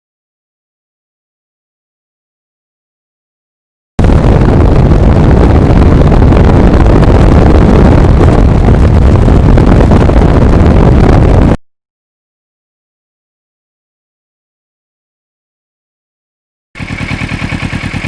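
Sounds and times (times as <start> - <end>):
wind buffeting microphone: 4.0 - 11.6.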